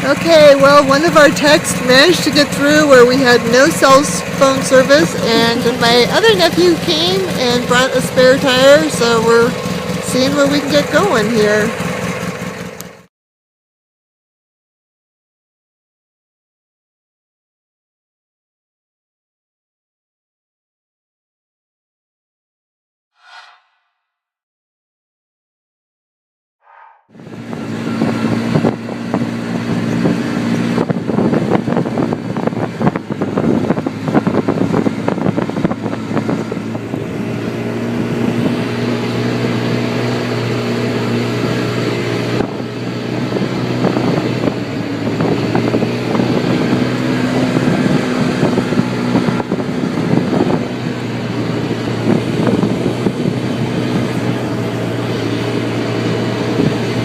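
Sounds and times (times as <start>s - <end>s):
atv engine running: 0.0s - 13.1s, 27.2s - 57.0s.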